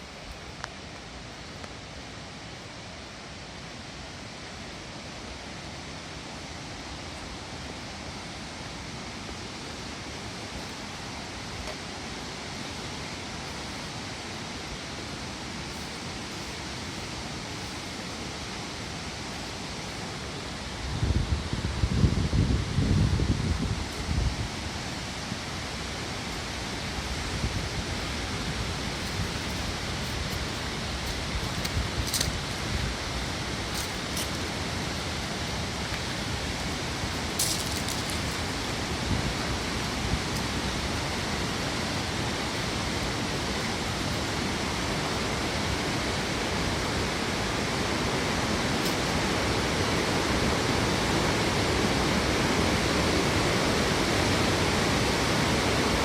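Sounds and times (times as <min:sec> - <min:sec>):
swollen river rushing: 0:00.0 - 0:56.0.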